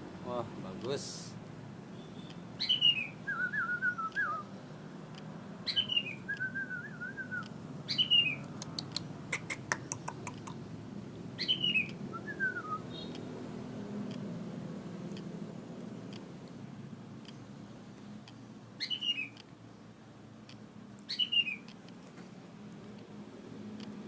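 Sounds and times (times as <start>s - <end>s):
songbird singing: 1.8s - 22.0s
run of sharp clicks: 8.4s - 10.6s.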